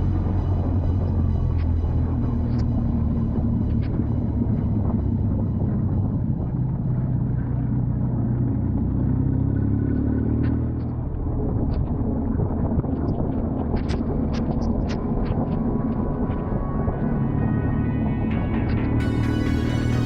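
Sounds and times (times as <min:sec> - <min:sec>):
wind noise: 0:11.0 - 0:18.9.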